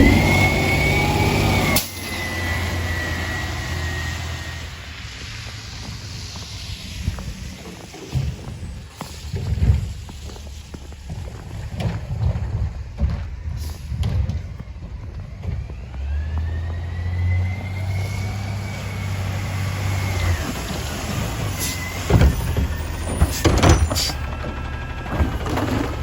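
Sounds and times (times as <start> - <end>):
loud metallic clanks and bangs: 0.0 - 2.6, 21.2 - 26.0
garbage truck engine revving: 0.0 - 6.0, 7.9 - 26.0
hydraulic whine: 0.0 - 26.0.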